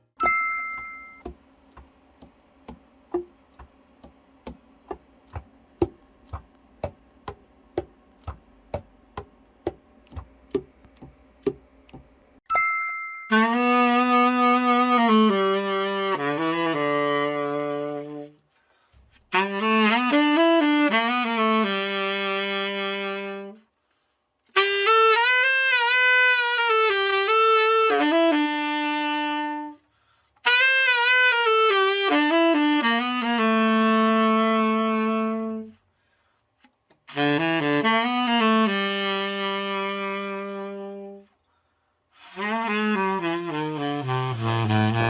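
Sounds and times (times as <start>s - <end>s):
tenor saxophone solo: 13.3s - 18.4s, 19.3s - 23.7s, 24.5s - 35.8s, 37.0s - 41.4s, 42.2s - 45.0s.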